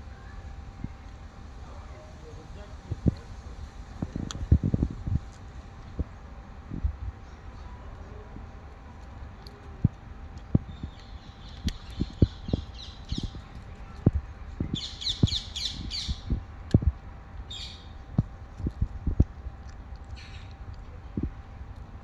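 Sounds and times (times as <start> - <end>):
bird chirping rapidly: 10.7 - 13.4, 14.7 - 16.3, 17.5 - 17.9.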